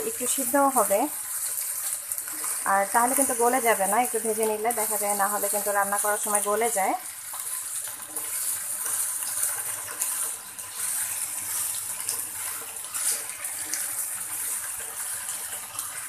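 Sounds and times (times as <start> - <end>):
okra sizzling in hot oil: 0.0 - 16.0
spatula scraping a pan: 1.3 - 2.7, 4.2 - 6.5, 7.3 - 15.3.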